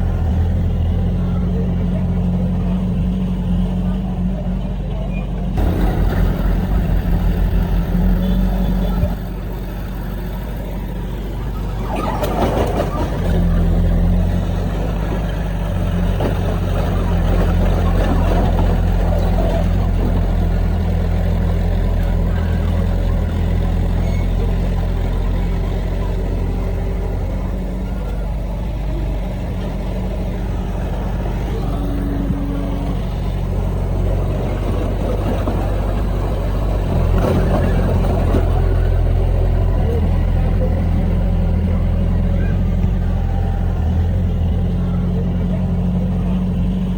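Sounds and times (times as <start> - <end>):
diesel earthmoving machinery running: 0.0 - 46.9.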